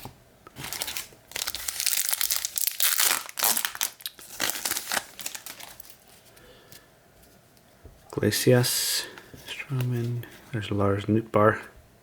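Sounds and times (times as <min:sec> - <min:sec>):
foil wrapper crinkling and tearing: 0:00.6 - 0:06.2.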